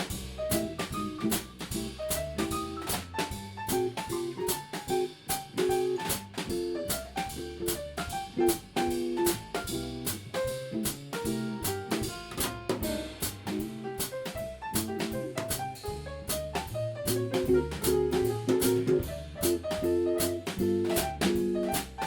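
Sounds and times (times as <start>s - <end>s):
drum kit beat: 0.0s - 22.0s
live band playing: 0.0s - 22.0s.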